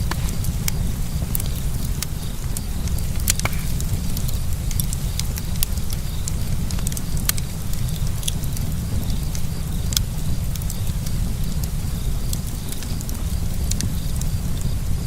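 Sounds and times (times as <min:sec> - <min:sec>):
steady low rumble: 0:00.0 - 0:11.4
bonfire crackling and popping: 0:00.0 - 0:15.0.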